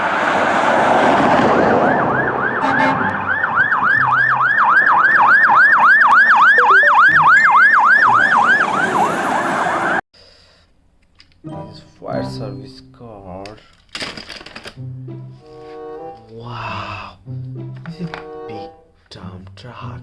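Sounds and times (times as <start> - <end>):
toy siren yelping: 2.0 - 9.1.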